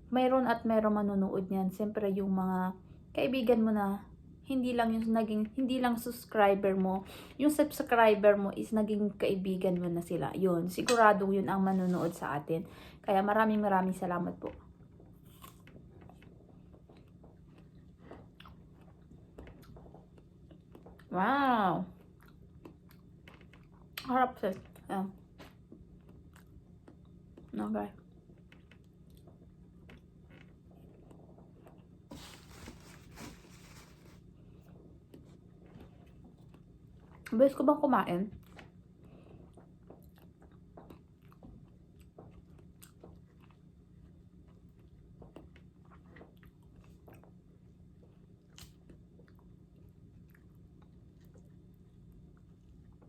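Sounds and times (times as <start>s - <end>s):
faint chewing and mouth clicks: 14.4s - 21.2s, 21.8s - 37.4s, 38.4s - 53.0s
apple crunching when bitten: 15.3s - 16.2s.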